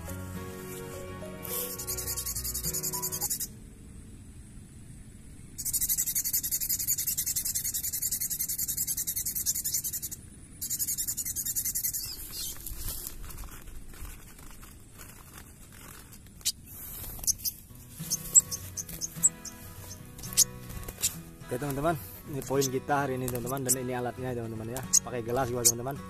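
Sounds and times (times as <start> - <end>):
styrofoam squeaking on glass: 0.0 - 3.5, 12.0 - 23.9, 24.7 - 26.0
faint clicks and rustling: 12.2 - 19.2.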